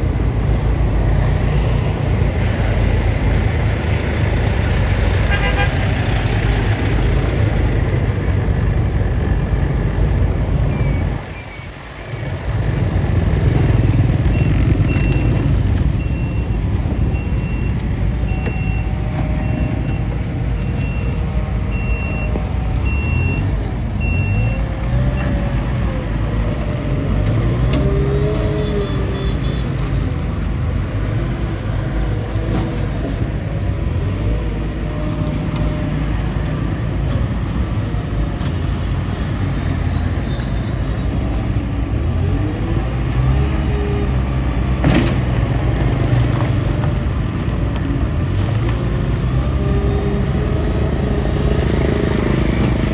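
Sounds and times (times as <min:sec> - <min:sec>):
bulldozer diesel engine running: 0:00.0 - 0:52.9
reversing alarm beeping: 0:08.8 - 0:25.5.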